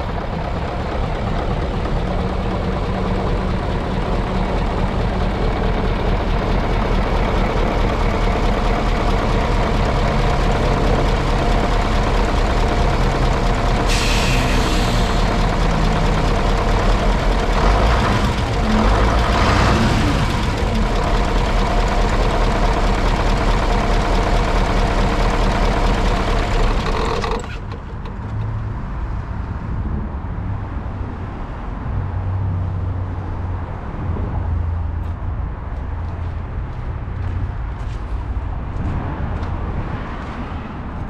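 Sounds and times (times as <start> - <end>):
diesel coach engine idling: 0.0 - 28.4.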